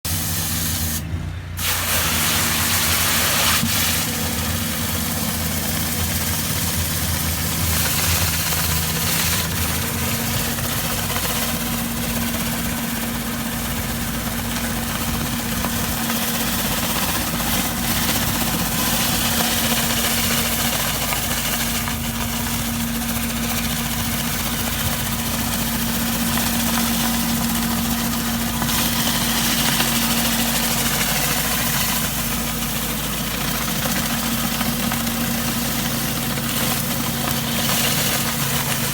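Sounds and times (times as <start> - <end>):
pressure washer engine running: 0.0 - 38.9
water spray hissing on paving: 0.1 - 1.0, 1.6 - 12.2, 16.0 - 23.8.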